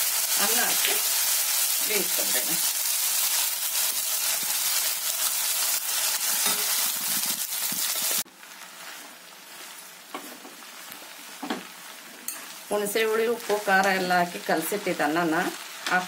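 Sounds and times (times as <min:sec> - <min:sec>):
oil sizzling in a pan: 0:00.0 - 0:16.0.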